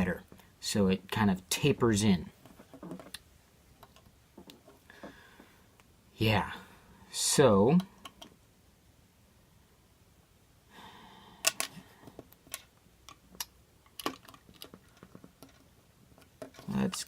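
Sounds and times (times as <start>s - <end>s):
plastic bricks clicking together: 11.4s - 11.8s, 12.5s - 15.6s
plastic bricks rustling: 13.9s - 17.0s.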